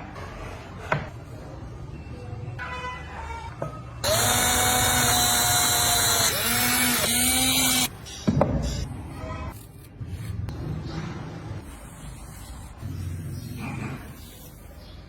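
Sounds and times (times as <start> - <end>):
electric power tool running: 4.0 - 7.9.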